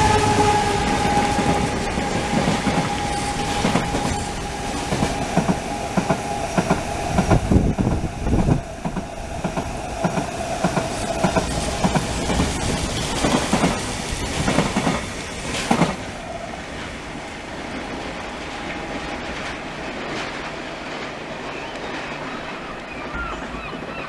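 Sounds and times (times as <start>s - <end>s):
train rumble: 0.0s - 24.0s
train wheels clattering over rail joints: 1.0s - 16.1s.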